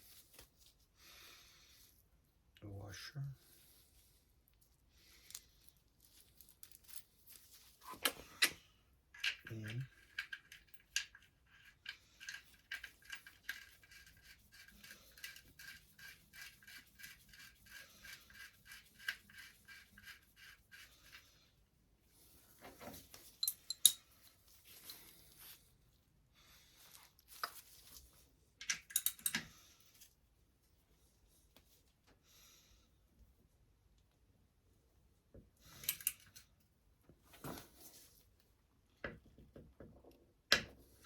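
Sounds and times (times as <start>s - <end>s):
light metal clinks and clatter: 23.2s - 24.4s, 28.6s - 29.6s.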